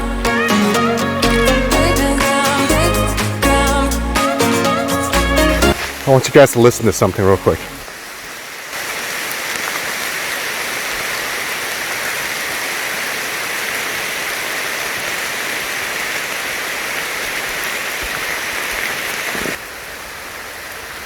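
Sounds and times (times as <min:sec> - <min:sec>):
heavy rain falling: 0:05.5 - 0:21.0.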